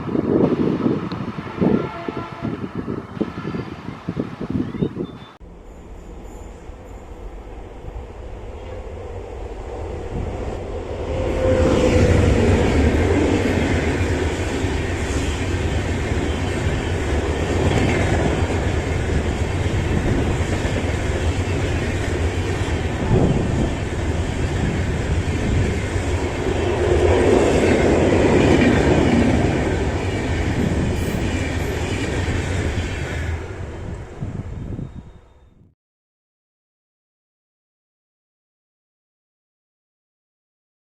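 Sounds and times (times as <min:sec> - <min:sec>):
train wheels rumbling on rails: 0:05.4 - 0:35.2.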